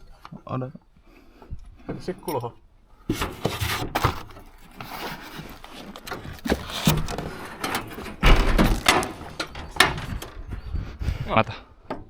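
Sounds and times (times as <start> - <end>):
hard objects knocking and scraping: 3.1 - 10.8
heavy thump: 8.2 - 10.2.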